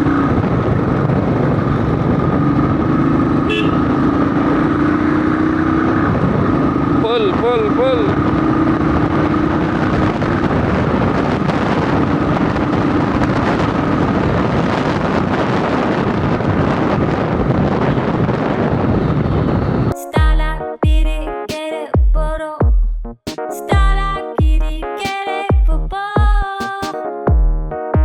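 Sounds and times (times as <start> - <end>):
motorcycle engine: 0.0 - 14.3
road noise: 0.0 - 20.0
wind rush on microphone: 0.0 - 20.0.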